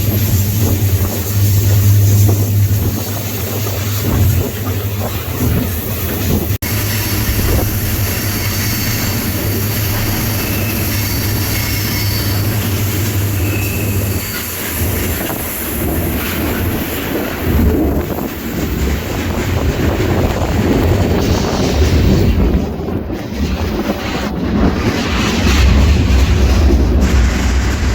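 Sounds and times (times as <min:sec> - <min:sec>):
train wheels rumbling on rail: 0:00.0 - 0:27.9
faint wheel squeal: 0:06.7 - 0:15.4.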